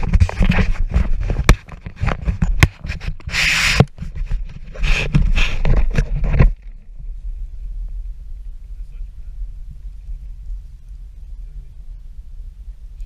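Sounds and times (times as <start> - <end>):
footsteps crunching on rough ground: 0.0 - 7.1.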